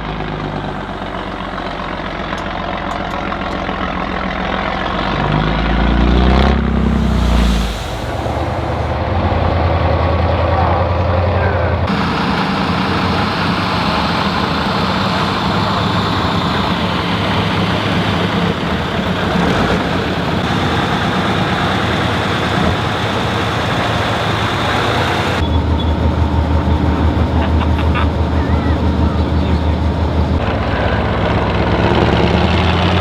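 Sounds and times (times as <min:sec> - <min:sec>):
pulsing low engine note: 0:00.0 - 0:33.0
truck engine under load: 0:00.0 - 0:33.0
dense hiss: 0:06.8 - 0:09.9, 0:11.9 - 0:25.4.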